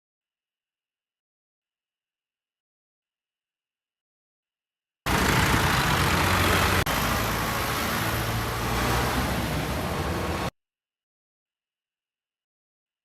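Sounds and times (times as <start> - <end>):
tractor engine running: 5.1 - 10.5.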